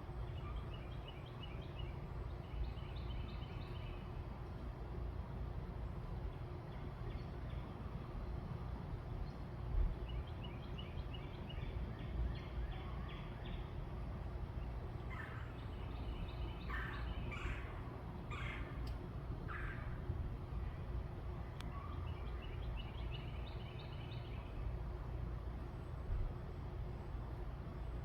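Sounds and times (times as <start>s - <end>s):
low background rumble: 0.0s - 28.0s
birds chirping: 9.2s - 20.9s
harsh bird calls: 15.0s - 18.8s.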